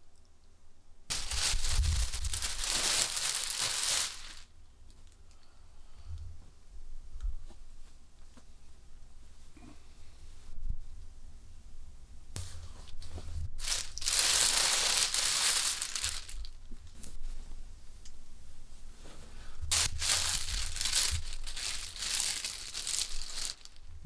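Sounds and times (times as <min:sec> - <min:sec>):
rustling and crinkling: 0:01.1 - 0:05.2, 0:12.4 - 0:17.6, 0:18.8 - 0:24.0.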